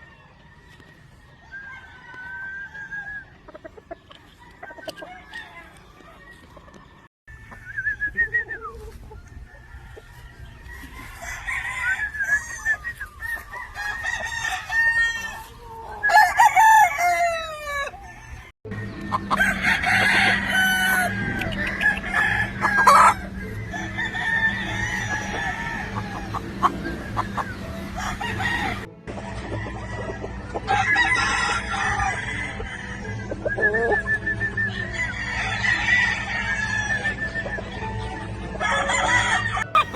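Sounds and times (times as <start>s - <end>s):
roosters crowing: 0.0s - 28.9s, 29.5s - 38.0s, 38.6s - 39.9s
chickens clucking: 1.4s - 11.3s, 15.2s - 16.3s, 17.9s - 35.5s, 36.5s - 39.9s.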